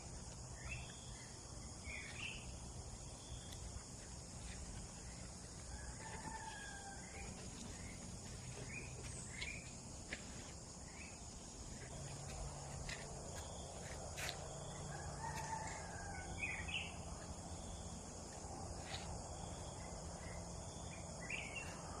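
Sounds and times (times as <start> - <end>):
high-pitched drone of insects: 0.0 - 22.0.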